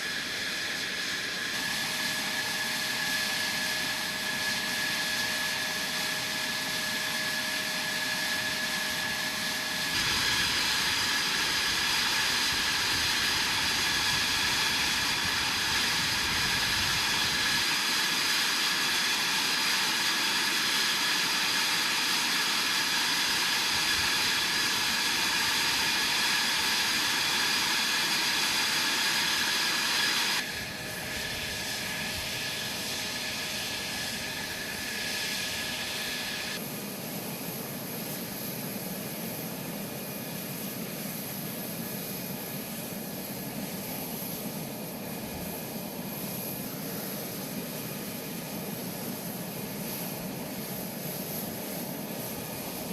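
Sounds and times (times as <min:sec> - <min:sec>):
jet engine whining: 0:00.0 - 0:52.9.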